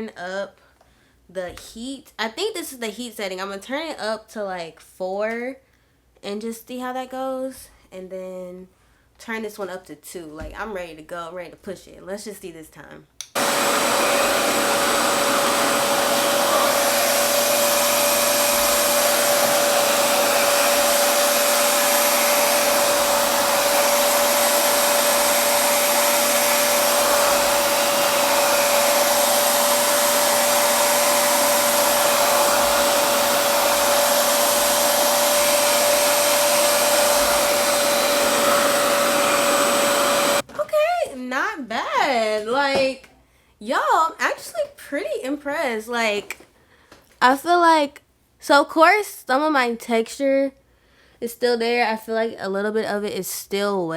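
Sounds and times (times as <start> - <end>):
blow dryer rushing air: 13.3 - 40.5.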